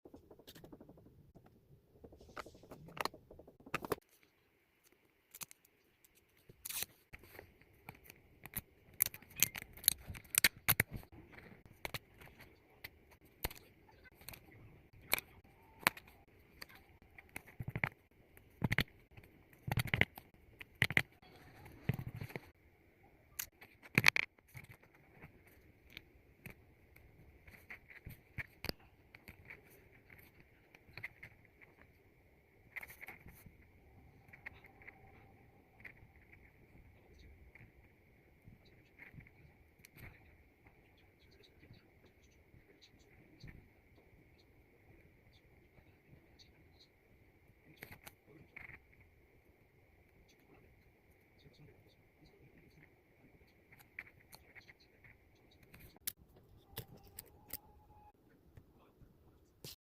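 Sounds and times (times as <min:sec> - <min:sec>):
stickers and plastic handled: 0:02.1 - 0:22.6, 0:23.3 - 0:32.0, 0:32.6 - 0:37.8, 0:53.5 - 0:58.1.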